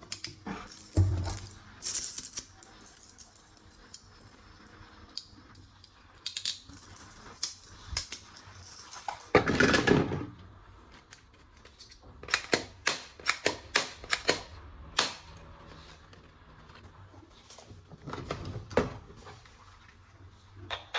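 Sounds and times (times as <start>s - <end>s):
plastic toy gun clicks: 12.3s - 15.2s.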